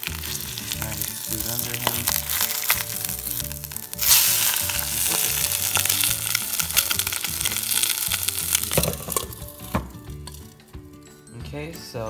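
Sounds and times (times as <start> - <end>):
food sizzling in a pan: 0.0 - 9.8
loud sizzle as bread lands: 0.8 - 10.0.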